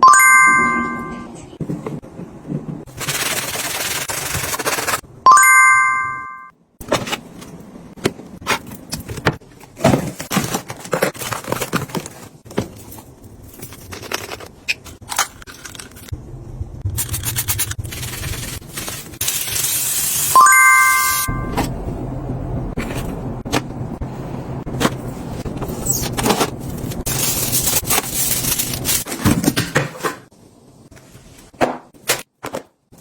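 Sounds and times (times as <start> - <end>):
bright chime sound effect: 0.0 - 1.4, 5.3 - 6.5, 20.4 - 21.6
snack packaging rustling: 10.1 - 12.4.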